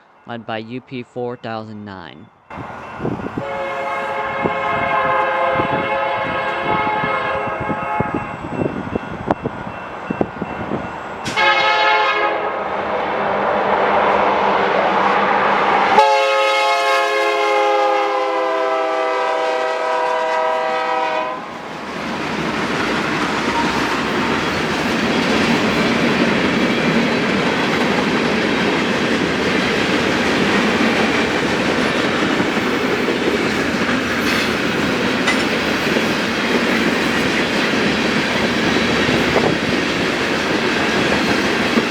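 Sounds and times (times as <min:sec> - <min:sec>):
locomotive air horn blasts: 0:03.4 - 0:08.2, 0:11.3 - 0:12.6, 0:15.9 - 0:21.4
train wheels rumbling: 0:20.8 - 0:41.9.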